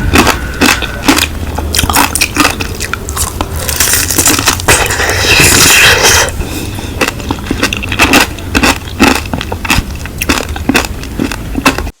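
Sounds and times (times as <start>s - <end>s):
biting and chewing strawberries: 0.0s - 12.0s.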